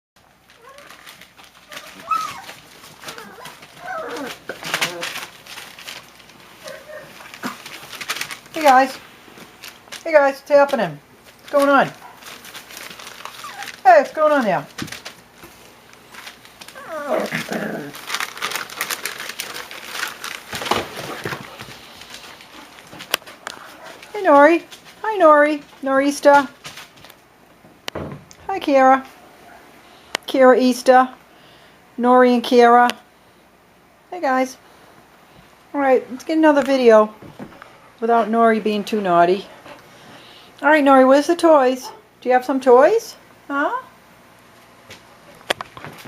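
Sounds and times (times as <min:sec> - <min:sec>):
crinkling and scratchy clicks: 0:00.2 - 0:10.1, 0:10.7 - 0:25.0
puppies whining and yelping: 0:01.6 - 0:05.2, 0:13.3 - 0:13.8, 0:16.8 - 0:17.6.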